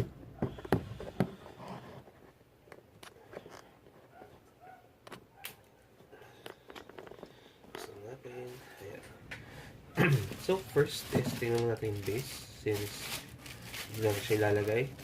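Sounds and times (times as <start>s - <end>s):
clicks and knocks of handling: 6.4s - 8.0s
packaging rustling: 10.0s - 15.0s.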